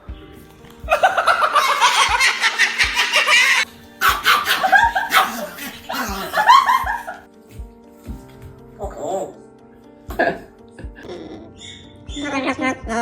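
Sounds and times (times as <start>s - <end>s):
background music with beat: 0.0s - 11.1s
giggling laughter: 0.9s - 7.2s.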